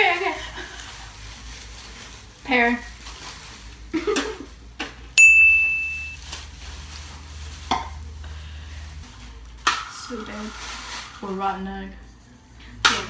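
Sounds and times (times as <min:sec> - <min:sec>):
bright ding: 0:05.2 - 0:06.2.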